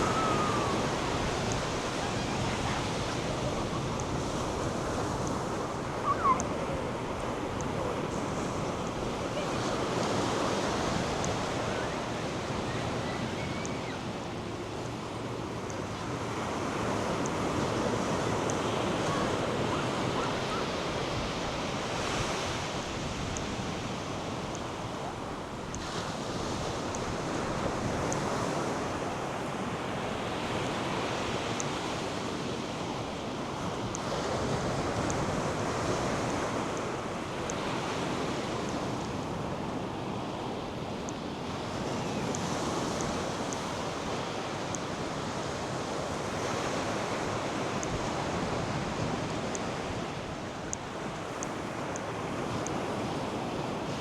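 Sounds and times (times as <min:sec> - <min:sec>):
surf washing onto beach: 0:00.0 - 0:54.0.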